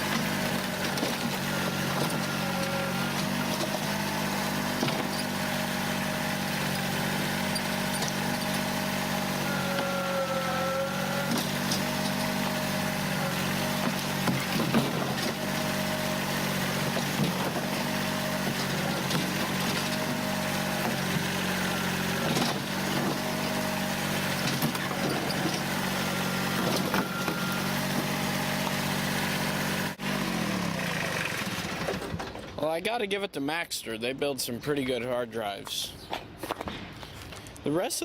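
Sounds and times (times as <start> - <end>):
sharp cracks and knocks: 0.0 - 2.3, 13.8 - 15.4, 36.1 - 37.6
diesel tractor engine running: 0.0 - 32.8.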